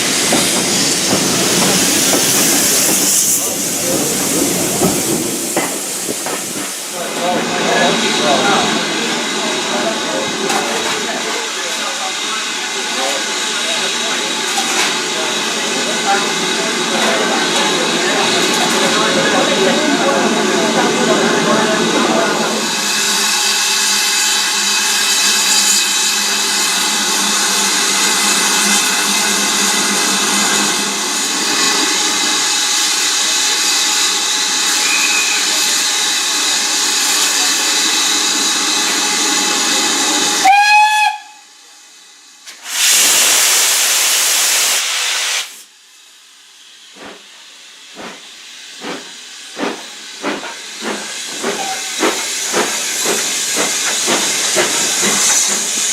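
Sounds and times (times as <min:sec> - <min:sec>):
steam hissing: 0:00.0 - 0:55.9
locomotive whistle blast: 0:34.8 - 0:35.5, 0:40.4 - 0:41.5.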